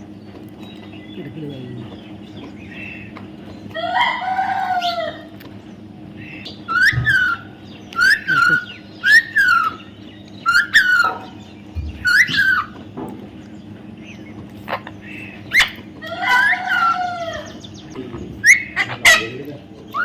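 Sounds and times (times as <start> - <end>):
parrot squawking: 3.8 - 5.3, 6.2 - 12.8, 14.6 - 20.0.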